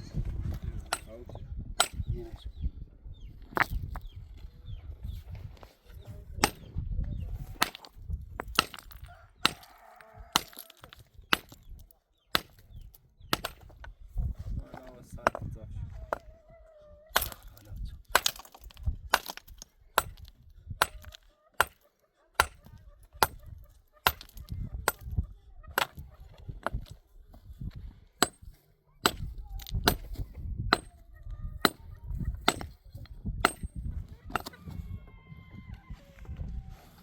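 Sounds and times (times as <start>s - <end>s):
sharp tool strikes: 1.8s - 2.1s, 33.4s - 34.6s.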